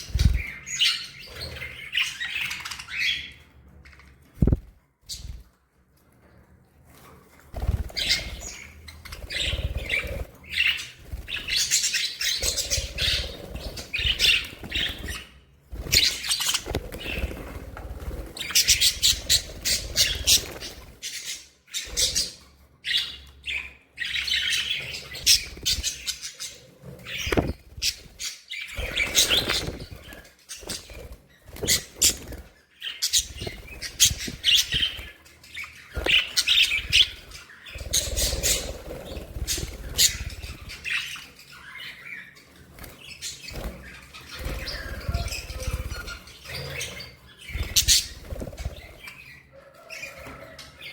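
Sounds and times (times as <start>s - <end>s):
wings fluttering: 0.0s - 2.8s, 4.3s - 5.5s, 6.9s - 22.3s, 24.8s - 41.2s, 42.6s - 50.6s
budgerigars chirping and chattering: 0.0s - 5.5s, 7.0s - 50.9s.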